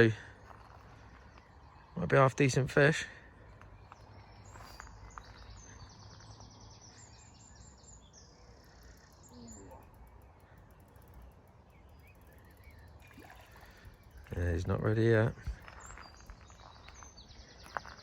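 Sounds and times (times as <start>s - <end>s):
low rumble of wind: 0.0s - 18.0s
small bird chirping: 3.8s - 18.0s.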